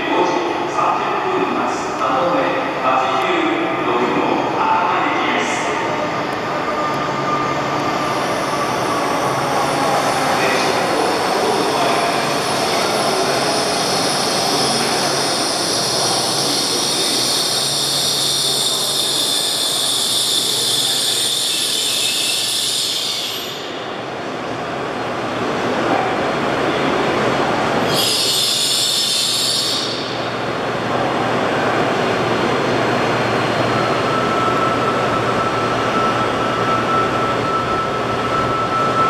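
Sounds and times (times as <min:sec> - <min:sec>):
high train whine: 0:00.0 - 0:39.0
train rushing noise: 0:00.0 - 0:39.0.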